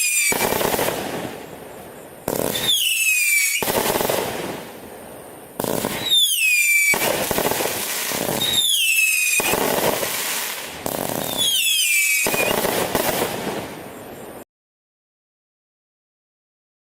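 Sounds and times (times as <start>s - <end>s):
firework whistle falling in pitch: 0.0s - 0.5s, 2.5s - 3.7s, 6.0s - 7.1s, 8.3s - 9.6s, 11.2s - 12.7s
firework crackling: 0.0s - 14.4s.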